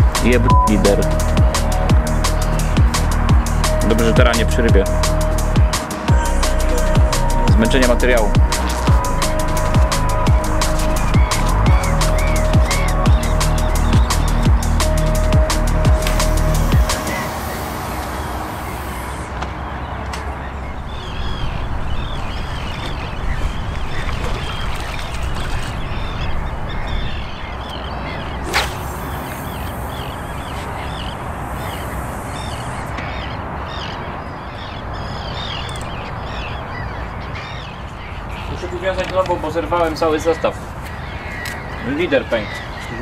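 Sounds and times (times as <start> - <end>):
steady background hiss: 28.5 - 33.9.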